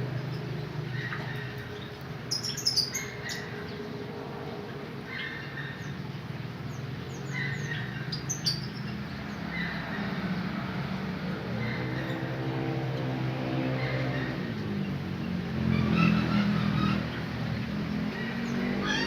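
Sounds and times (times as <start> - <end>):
canaries chirping: 0.0 - 3.8, 6.6 - 10.1.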